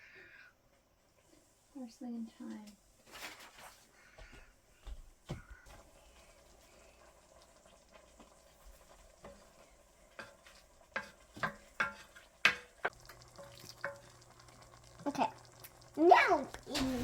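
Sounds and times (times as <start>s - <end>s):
spoon scraping cooking pot: 8.9s - 14.3s.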